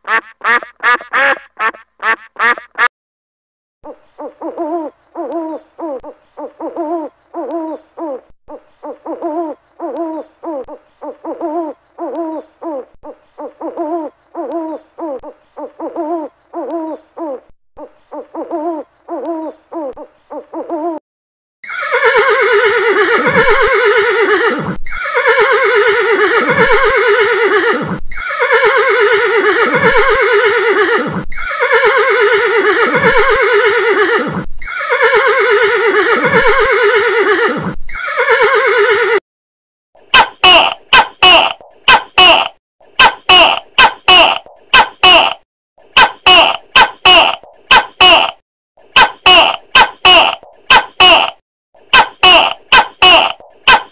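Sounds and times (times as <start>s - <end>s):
horse whinnying: 21.6s - 39.2s.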